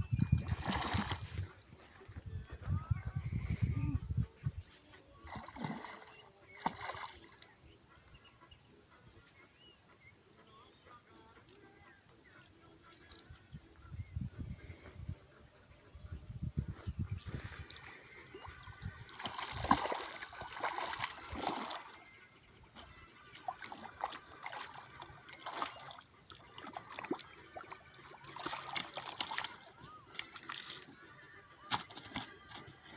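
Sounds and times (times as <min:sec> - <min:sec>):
water splashing and sloshing: 0:00.1 - 0:02.0, 0:04.8 - 0:07.6, 0:17.2 - 0:32.9.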